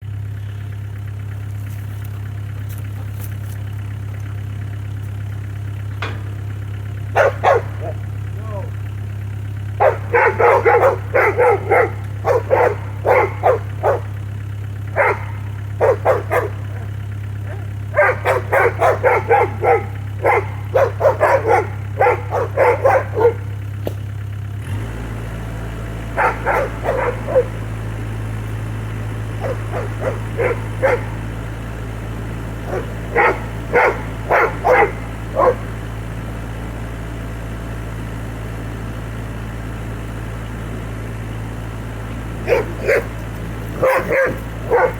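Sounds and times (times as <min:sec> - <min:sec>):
excavator diesel engine hum: 0:00.0 - 0:44.9
dog barking: 0:06.0 - 0:08.8, 0:09.7 - 0:23.9, 0:25.8 - 0:36.6, 0:42.4 - 0:44.9.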